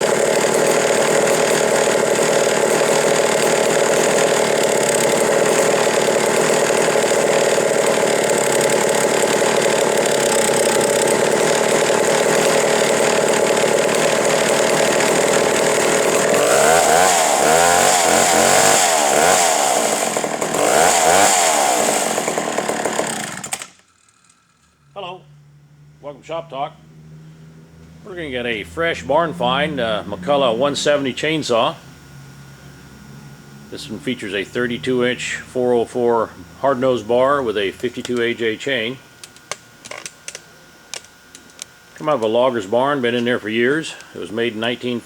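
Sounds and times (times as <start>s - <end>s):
chainsaw engine revving: 0.0s - 25.2s, 33.0s - 40.4s.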